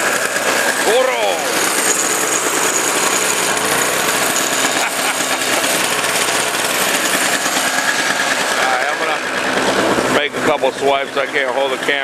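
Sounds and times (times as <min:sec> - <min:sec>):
snowblower engine running: 0:00.0 - 0:12.0.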